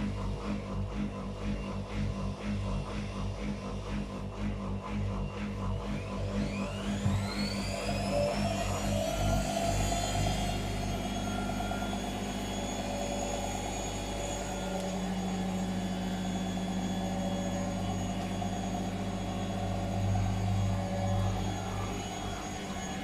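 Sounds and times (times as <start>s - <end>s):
washing machine spinning: 0.0s - 23.0s.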